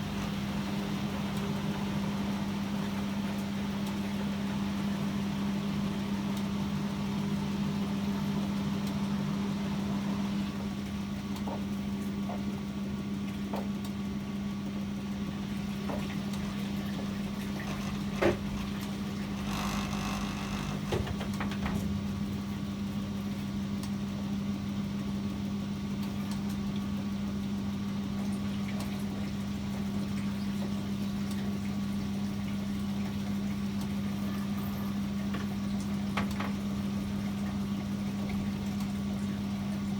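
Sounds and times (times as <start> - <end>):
washing machine humming: 0.0 - 39.9
clicks and knocks: 17.4 - 21.8.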